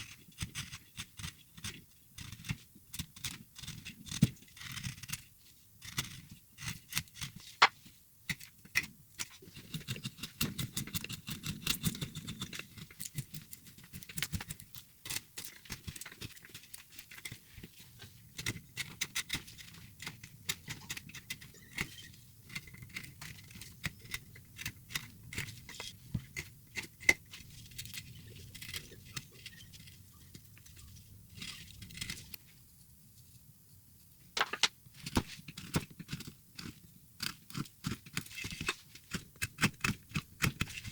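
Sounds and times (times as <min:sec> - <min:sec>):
carving tools cutting wood: 0:00.0 - 0:07.4, 0:18.4 - 0:29.8, 0:35.6 - 0:40.9.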